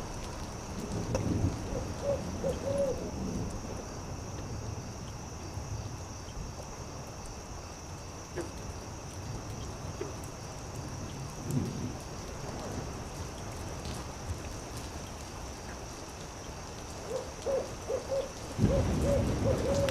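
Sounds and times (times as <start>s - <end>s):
owl hooting: 1.7s - 3.0s, 17.1s - 19.9s.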